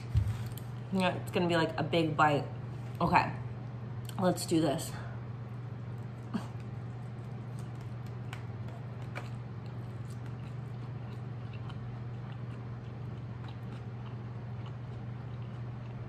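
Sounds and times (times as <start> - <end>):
steady low hum: 0.0 - 16.0
person chewing with mouth closed: 6.2 - 16.0.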